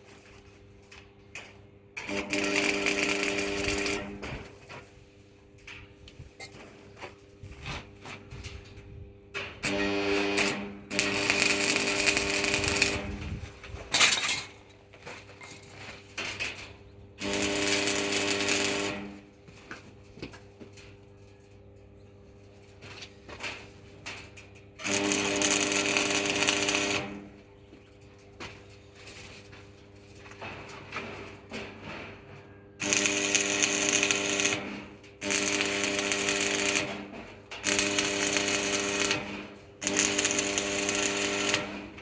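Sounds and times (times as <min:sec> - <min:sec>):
power tool grinding metal: 0:32.8 - 0:42.0.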